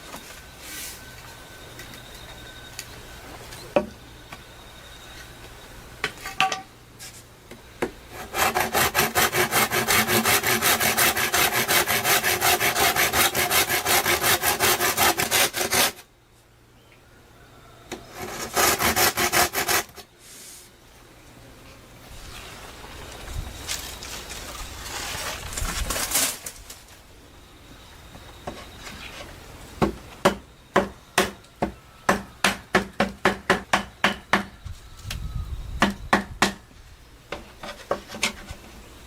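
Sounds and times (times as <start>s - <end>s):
hand saw cutting wood: 8.1s - 16.0s, 18.1s - 20.1s.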